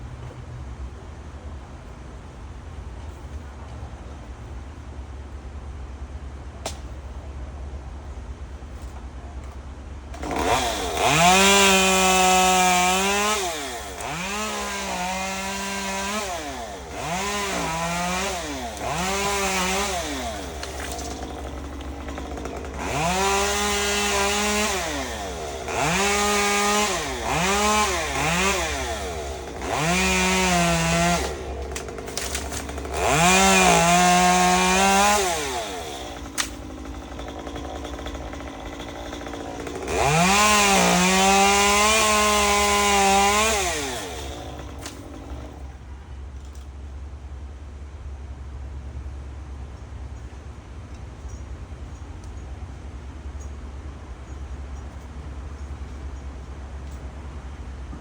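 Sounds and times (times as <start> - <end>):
chainsaw revving and cutting: 10.2 - 45.7.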